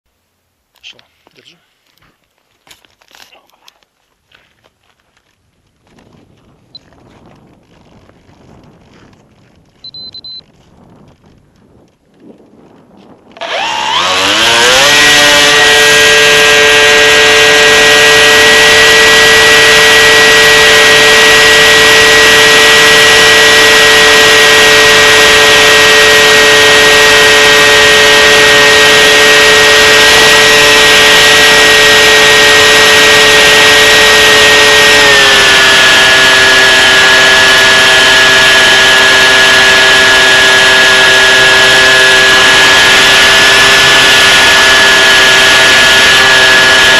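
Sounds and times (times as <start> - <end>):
model aircraft electric motor whine: 12.7 - 46.9.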